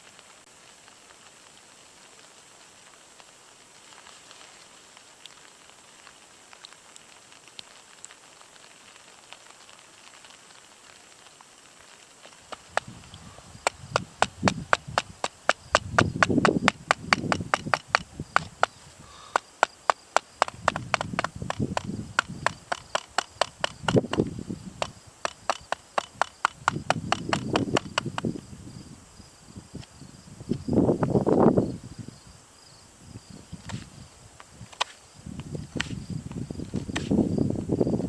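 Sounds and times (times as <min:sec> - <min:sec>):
rapid chopping on wood: 0:13.6 - 0:28.3.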